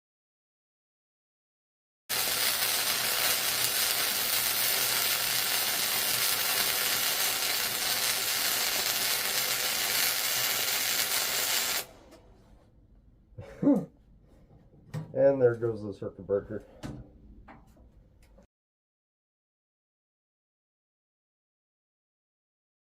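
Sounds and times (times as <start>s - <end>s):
welding arc crackling: 2.1s - 12.2s.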